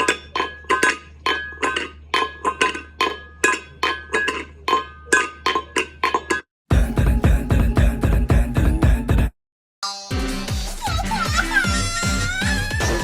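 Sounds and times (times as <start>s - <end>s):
dense loud music: 6.7s - 9.3s.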